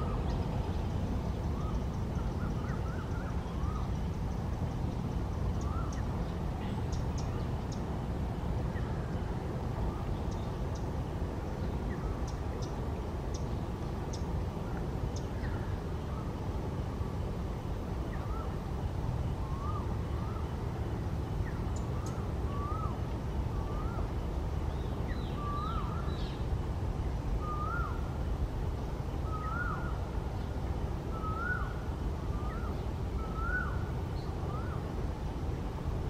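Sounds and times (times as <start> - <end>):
steady low rumble: 0.0 - 36.0
bird call rising and falling: 29.2 - 30.1, 31.1 - 34.9.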